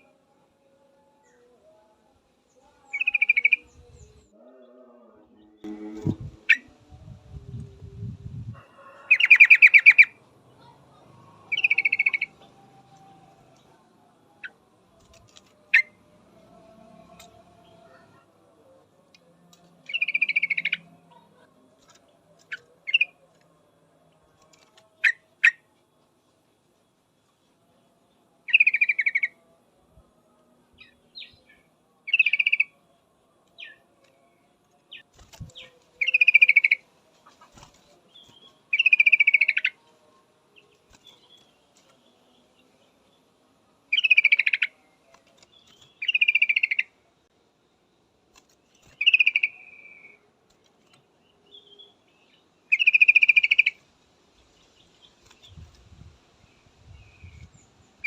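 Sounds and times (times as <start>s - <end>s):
bird sharp chirps: 11.5s - 12.4s, 43.9s - 44.8s, 45.5s - 46.8s, 48.8s - 50.2s, 51.4s - 53.8s.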